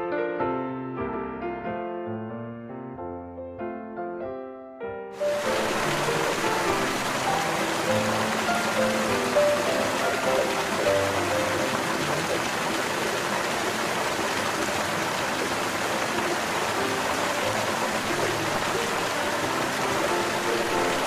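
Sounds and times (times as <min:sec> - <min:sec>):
steady rushing hiss: 0:05.2 - 0:21.0.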